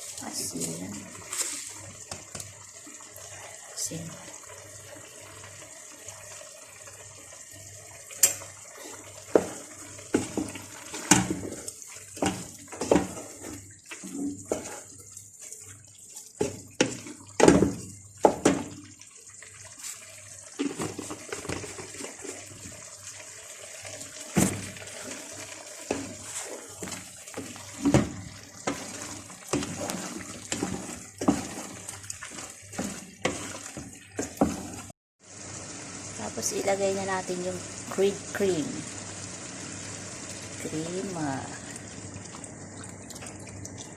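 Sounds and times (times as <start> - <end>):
spoon stirring thick sauce: 25.1 - 34.9.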